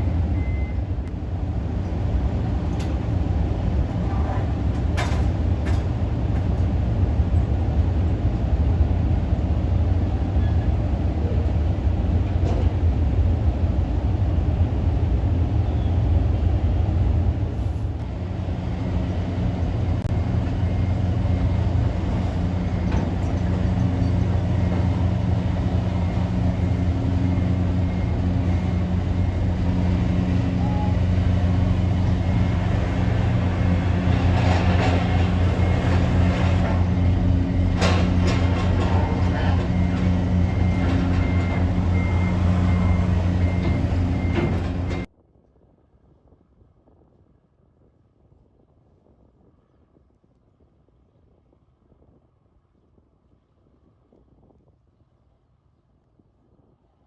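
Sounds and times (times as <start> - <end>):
ferry diesel engines droning: 0.0 - 45.1
pitched engine hum: 15.9 - 45.1.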